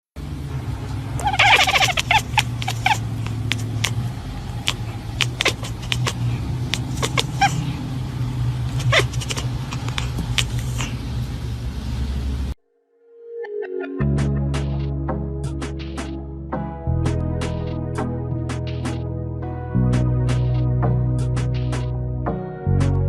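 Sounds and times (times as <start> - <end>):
cat meowing: 1.2 - 4.0, 4.6 - 7.8, 8.7 - 10.9
sharp clicks: 1.3 - 7.6.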